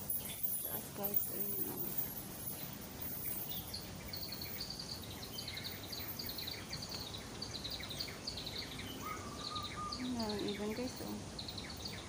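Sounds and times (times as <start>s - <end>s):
birds chirping: 0.0s - 12.0s
low background noise: 0.0s - 12.0s.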